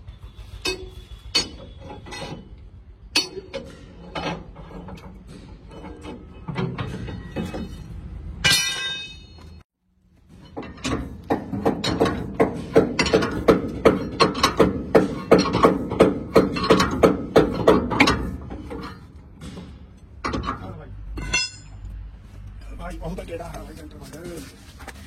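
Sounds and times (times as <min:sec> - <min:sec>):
hammer striking steel: 0:00.6 - 0:02.4, 0:03.1 - 0:04.0, 0:08.4 - 0:09.6, 0:10.6 - 0:20.4, 0:21.1 - 0:22.0
high metallic ring: 0:21.2 - 0:22.0.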